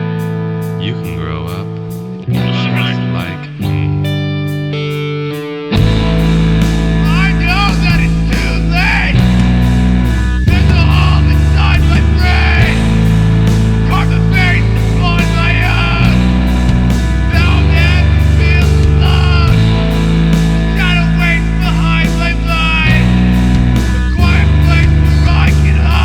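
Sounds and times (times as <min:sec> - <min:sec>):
rock song with electric guitar: 0:00.0 - 0:26.0
person singing: 0:02.3 - 0:04.0, 0:07.0 - 0:09.4, 0:10.5 - 0:16.7, 0:17.3 - 0:20.0, 0:20.7 - 0:23.3, 0:24.2 - 0:26.0.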